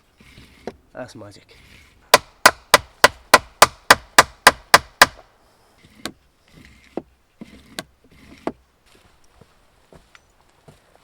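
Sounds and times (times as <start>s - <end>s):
hatchet chopping wood: 2.1s - 5.3s.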